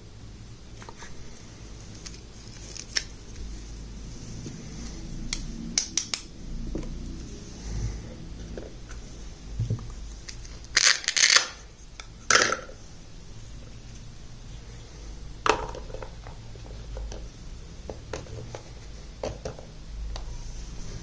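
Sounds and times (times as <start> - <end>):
packaging crinkling: 1.8 - 3.5, 10.2 - 11.6.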